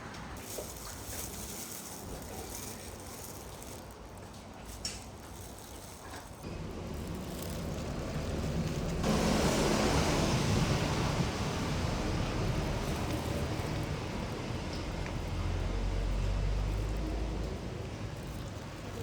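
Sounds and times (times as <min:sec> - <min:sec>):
passing vehicle rumble: 0:05.6 - 0:19.0.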